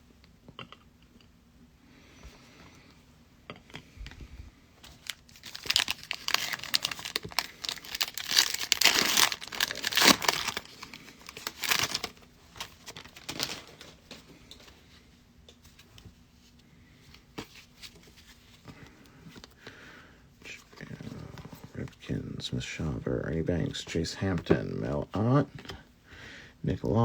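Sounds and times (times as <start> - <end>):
foil wrapper tearing and crinkling: 4.9 - 13.9.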